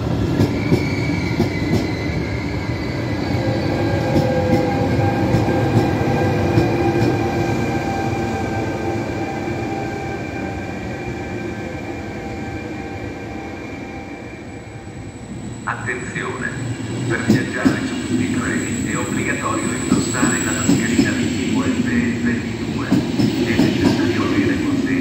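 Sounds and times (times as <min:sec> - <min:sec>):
electric train whine: 0:00.0 - 0:25.0.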